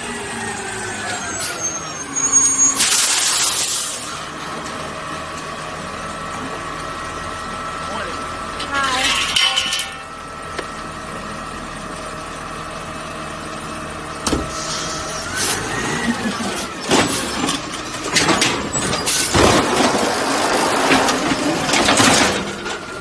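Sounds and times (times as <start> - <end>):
garbage truck engine whine: 0.0 - 23.0
loud clanks: 8.6 - 10.1, 16.4 - 23.0.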